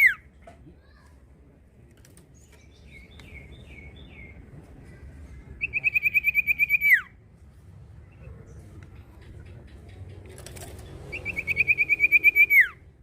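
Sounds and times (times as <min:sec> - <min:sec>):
bird whistled notes: 0:05.6 - 0:07.1, 0:11.1 - 0:12.8
bird rapid trill: 0:10.4 - 0:12.8.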